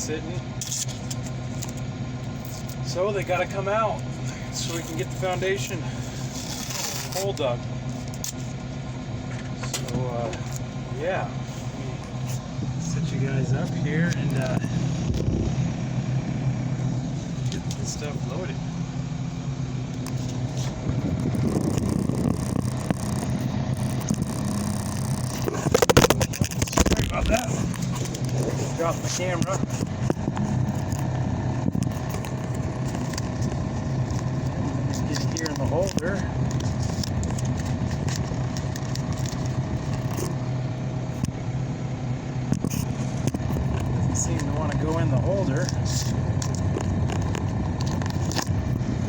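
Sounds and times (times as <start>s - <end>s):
excavator diesel engine running: 0.0s - 49.0s.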